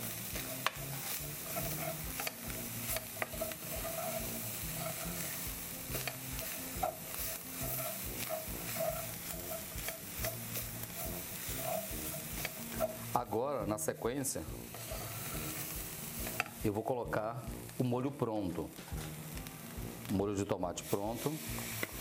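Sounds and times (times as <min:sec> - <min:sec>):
meat sizzling in a pot: 0:00.0 - 0:22.0
spatula scraping a metal pot: 0:00.3 - 0:13.1, 0:14.7 - 0:16.6.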